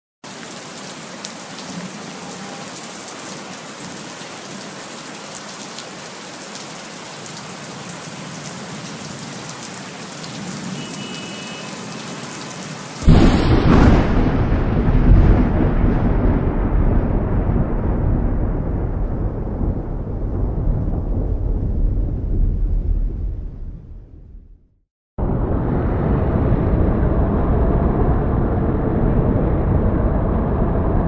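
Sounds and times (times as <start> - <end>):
rain falling: 0.2 - 23.4
thunder rumble: 13.0 - 31.0.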